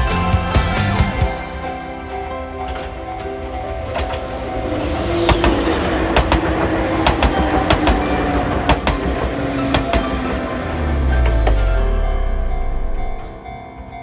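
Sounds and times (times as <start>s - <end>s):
train rumble: 0.0s - 14.0s
train wheels clacking over joints: 1.6s - 11.8s.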